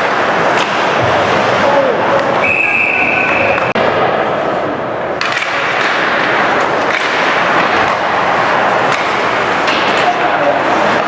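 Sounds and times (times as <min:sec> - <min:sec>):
hockey stick hitting puck: 0:00.0 - 0:02.4, 0:05.1 - 0:11.0
skates scraping ice: 0:00.0 - 0:11.0
arena crowd din: 0:00.4 - 0:11.0.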